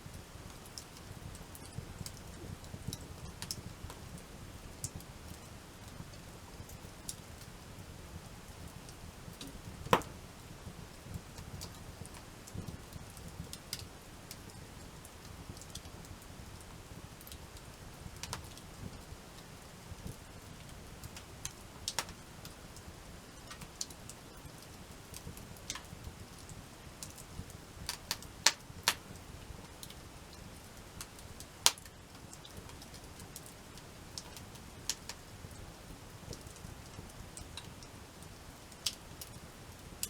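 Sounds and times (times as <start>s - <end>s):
campfire crackling: 0.0s - 40.0s
low steady hiss: 0.0s - 40.0s
fire pops and snaps: 0.2s - 4.1s, 8.7s - 14.6s, 17.0s - 19.0s, 19.9s - 22.6s, 27.0s - 35.6s.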